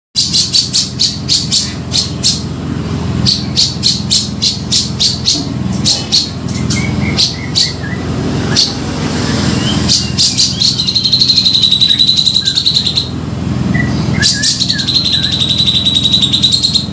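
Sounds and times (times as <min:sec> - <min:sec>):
bird harsh rapid chattering: 0:00.2 - 0:02.5, 0:03.2 - 0:08.8, 0:09.5 - 0:13.2, 0:13.8 - 0:16.9
steady low hum: 0:00.2 - 0:16.9
thin whistled bird notes: 0:09.3 - 0:13.1, 0:13.7 - 0:16.9.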